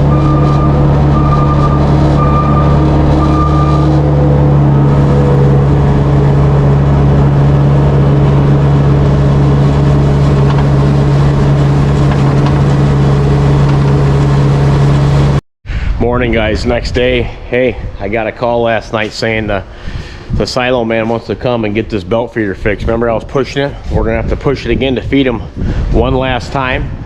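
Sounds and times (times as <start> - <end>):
reversing alarm beep: 0.0 - 4.0
loader engine humming: 0.0 - 15.4.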